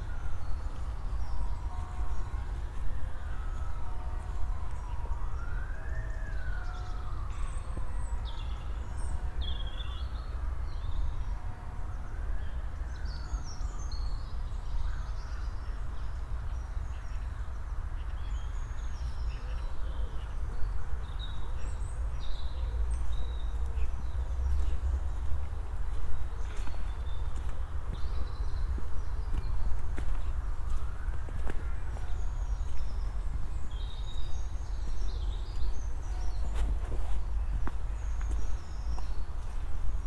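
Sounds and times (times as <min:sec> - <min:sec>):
emergency siren wailing: 0:01.5 - 0:08.9.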